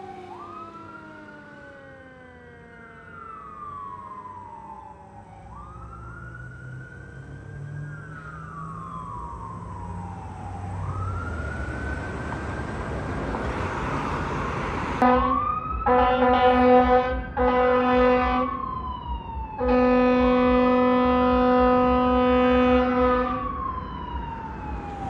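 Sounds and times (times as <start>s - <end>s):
fire truck siren wailing: 0.0s - 25.0s
air horn blasts: 15.0s - 18.6s, 19.6s - 23.5s.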